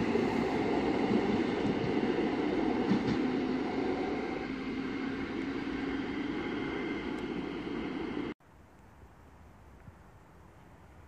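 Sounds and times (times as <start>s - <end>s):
train rumble receding: 0.0s - 8.4s.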